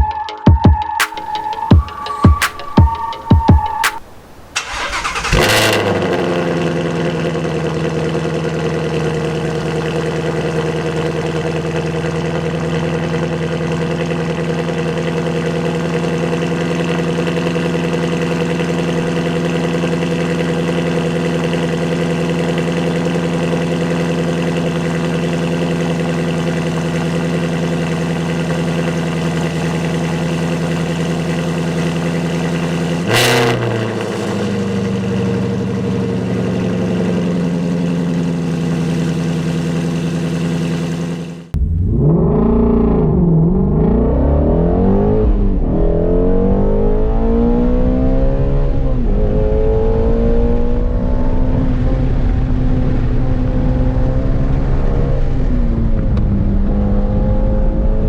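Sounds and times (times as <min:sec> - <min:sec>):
car engine idling: 0:01.0 - 0:44.0.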